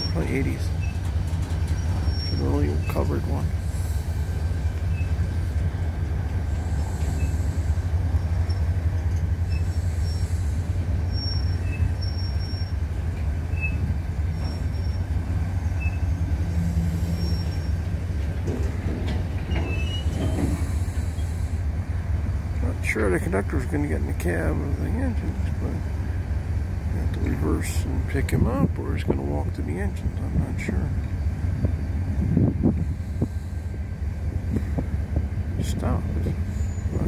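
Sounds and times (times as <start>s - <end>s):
high-pitched wheel squeals: 0.0s - 3.8s, 4.8s - 5.2s, 6.6s - 12.8s, 13.5s - 17.9s, 19.4s - 21.5s, 36.4s - 37.0s
freight train rumbling: 0.0s - 37.0s.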